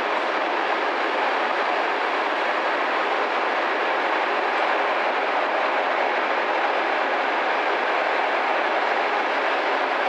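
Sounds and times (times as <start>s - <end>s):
train wheels running on rails: 0.0s - 10.0s.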